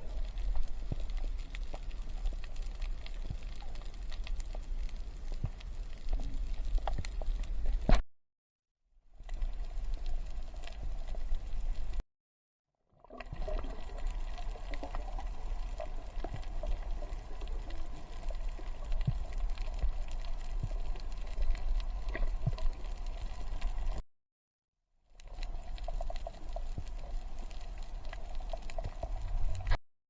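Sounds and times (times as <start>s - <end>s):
steady low rumble: 0.0s - 7.9s, 13.7s - 24.0s
water gurgling and sloshing: 0.0s - 8.0s, 12.9s - 24.0s, 25.2s - 29.8s.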